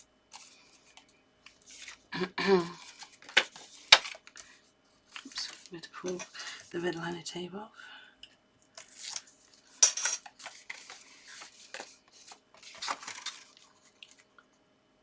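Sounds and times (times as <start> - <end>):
card being handled: 10.3 - 14.2.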